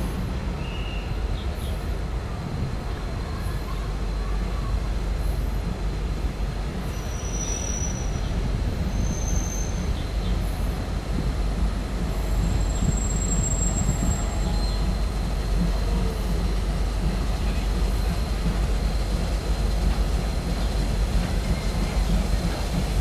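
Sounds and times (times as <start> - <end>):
train low rumble: 0.0 - 23.0
high-pitched wheel squeals: 8.9 - 9.9, 12.6 - 14.9.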